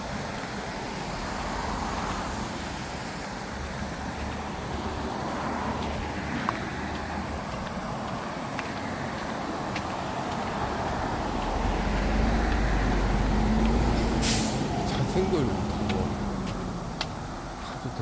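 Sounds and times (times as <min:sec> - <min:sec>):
vehicle engine passing: 0:00.0 - 0:18.0
short sharp hiss: 0:14.0 - 0:14.7.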